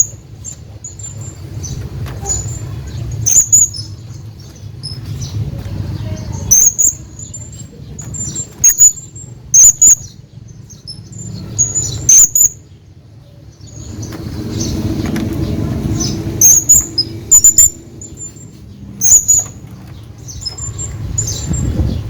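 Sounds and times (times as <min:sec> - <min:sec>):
low rumbling background: 0:00.0 - 0:22.0
parrot shrill high calls: 0:11.6 - 0:12.6.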